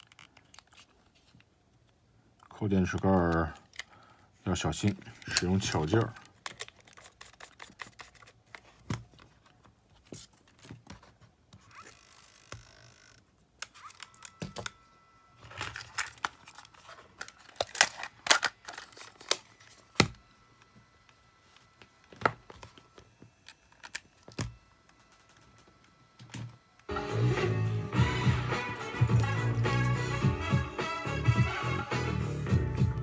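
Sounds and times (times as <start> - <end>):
plastic clicks from cassette player: 4.8 - 9.0, 15.5 - 21.2.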